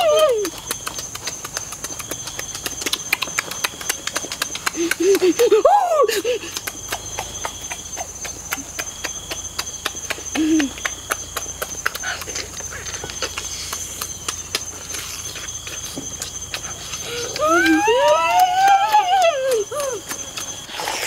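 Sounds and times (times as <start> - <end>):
wet chewing and lip-smacking: 0.0 - 21.0
sharp mouth clicks: 0.3 - 5.4, 6.3 - 17.5, 19.7 - 21.0.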